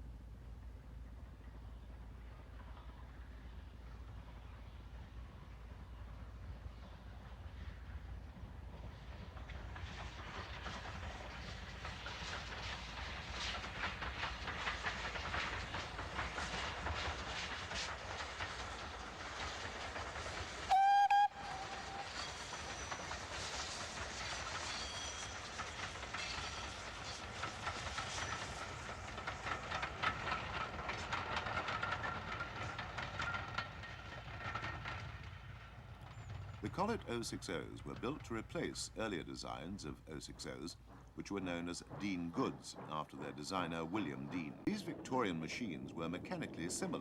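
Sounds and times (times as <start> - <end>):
steam train rumbling: 0.0 - 47.0
steam whistle blast: 20.7 - 22.3.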